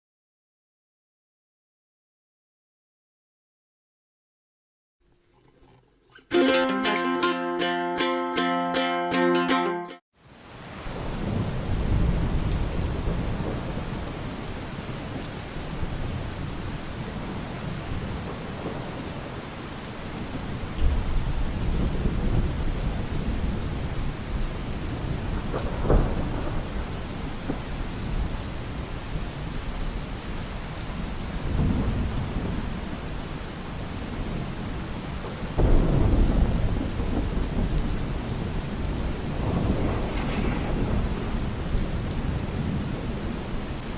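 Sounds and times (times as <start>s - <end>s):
heavy rain: 9.1s - 43.9s
thunder rumbling: 10.9s - 19.4s, 20.2s - 32.9s, 35.6s - 43.9s.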